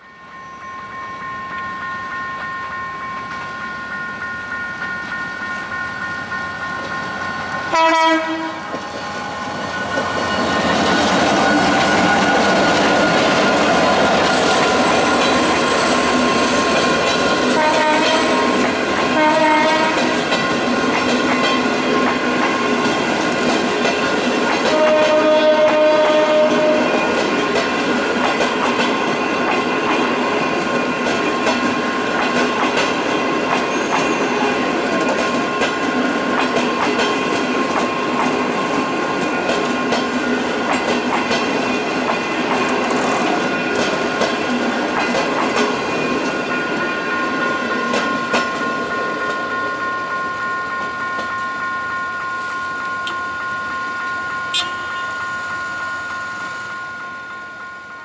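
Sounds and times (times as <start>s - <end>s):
train coaches rolling past: 0.0s - 58.0s
high-pitched tones: 46.2s - 58.0s.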